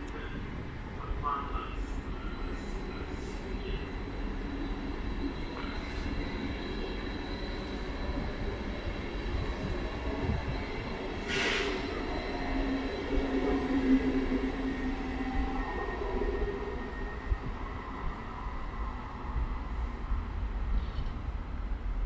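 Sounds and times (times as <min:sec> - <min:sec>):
train low rumble: 0:00.0 - 0:22.0
short hiss: 0:11.3 - 0:11.8.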